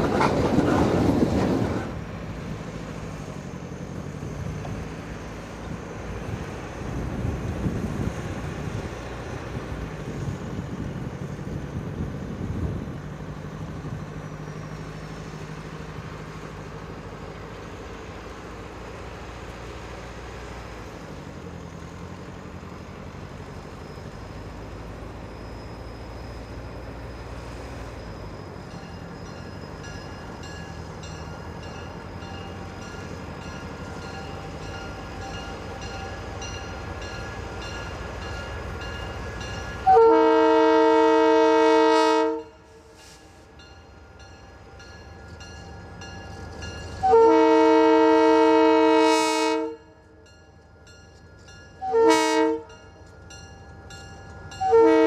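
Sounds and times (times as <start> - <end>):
locomotive engine rumble: 0.0 - 55.0
train air horn blasts: 39.8 - 43.2, 47.0 - 50.0, 51.8 - 52.8, 54.6 - 55.0.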